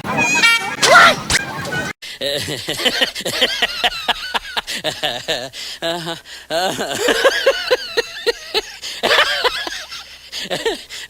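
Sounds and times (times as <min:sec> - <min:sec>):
people laughing: 0:00.0 - 0:10.8.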